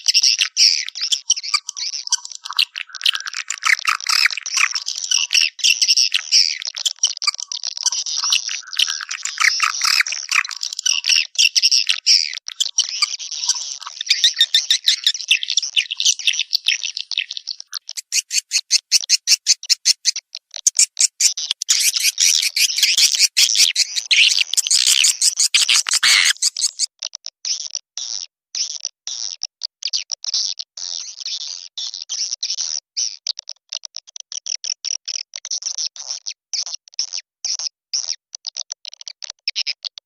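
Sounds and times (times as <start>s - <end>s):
swiftlets twittering: 20.6s - 26.9s.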